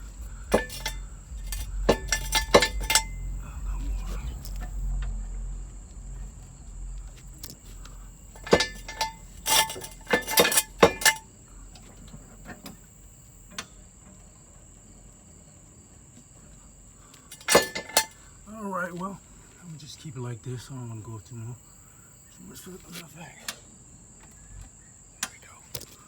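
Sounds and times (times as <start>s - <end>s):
metal jack clanking: 0.0s - 4.8s, 8.4s - 12.8s, 17.3s - 18.2s
steady high-pitched tone: 0.0s - 11.2s.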